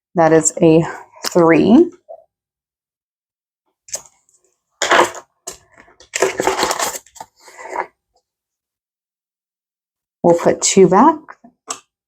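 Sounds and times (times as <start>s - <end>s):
banknotes and envelopes rustling: 6.1s - 7.9s.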